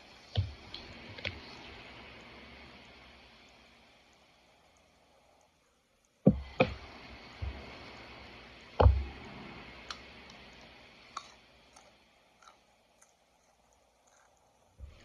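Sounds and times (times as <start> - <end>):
heavy thump: 8.8 - 9.1
sharp knocks: 8.8 - 9.1.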